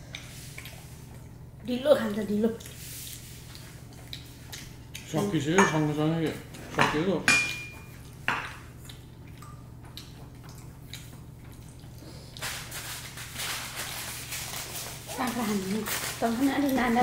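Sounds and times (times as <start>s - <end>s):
chewing and wet mouth sounds: 0.0s - 6.6s, 7.8s - 17.0s
steady low hum: 0.0s - 17.0s.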